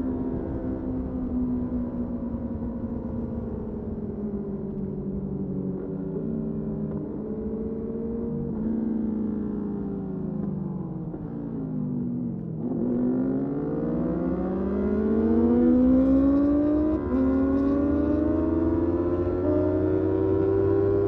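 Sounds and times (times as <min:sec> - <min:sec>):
motorcycle engine accelerating: 0:12.5 - 0:21.0.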